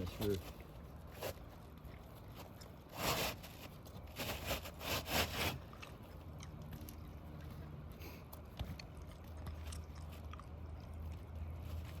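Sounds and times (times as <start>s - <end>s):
roof shingles scraping: 2.9s - 5.6s.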